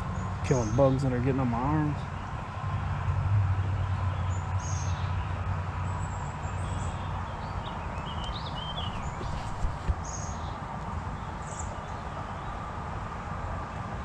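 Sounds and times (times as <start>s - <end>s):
small birds chirping: 6.6s - 10.2s.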